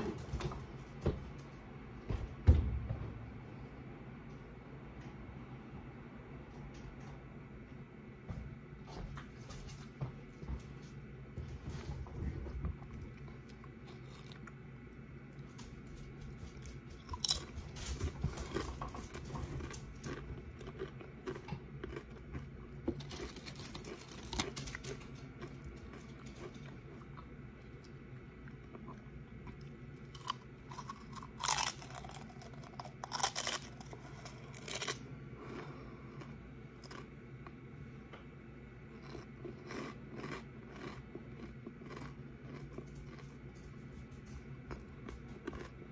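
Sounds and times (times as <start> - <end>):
chewing crunchy tortilla chips: 12.8 - 14.6, 15.3 - 37.6, 38.9 - 45.9.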